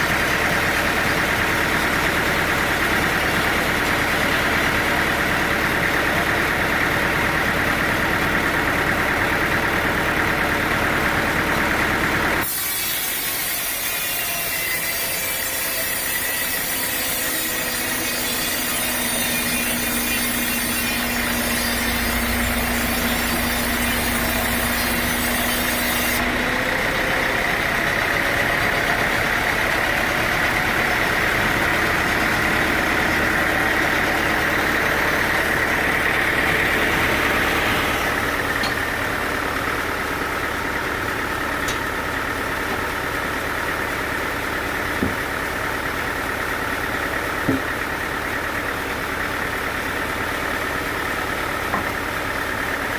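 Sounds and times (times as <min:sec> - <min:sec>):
sawmill machinery running: 0:00.0 - 0:52.9
saw cutting through wood: 0:09.5 - 0:43.9.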